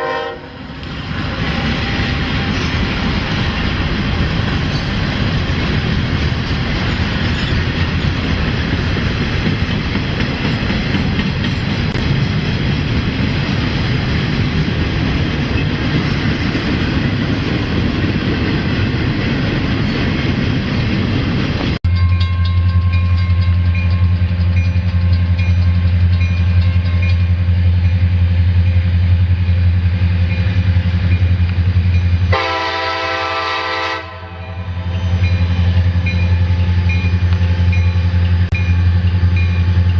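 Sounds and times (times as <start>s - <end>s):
train horn blast: 0.0s - 2.7s, 32.3s - 35.2s
diesel locomotive engine drone: 0.0s - 39.9s
train rolling past: 0.0s - 39.9s.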